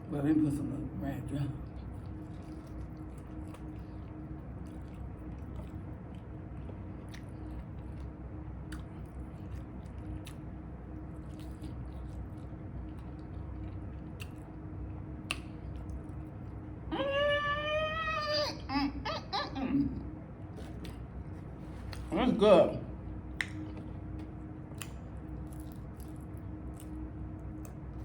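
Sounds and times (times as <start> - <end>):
mouth chewing sounds: 1.6 - 16.8, 20.4 - 22.1, 23.1 - 28.0.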